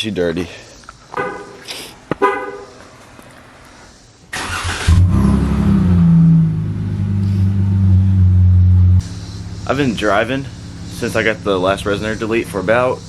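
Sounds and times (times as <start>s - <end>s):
car horn chirps: 1.1s - 3.0s
engine starter cranking: 2.8s - 5.3s
loud deep engine idle: 6.6s - 13.0s.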